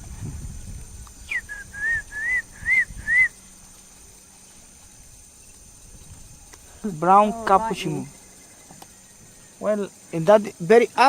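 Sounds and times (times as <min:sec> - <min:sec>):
animal whistled call: 0:01.2 - 0:03.4.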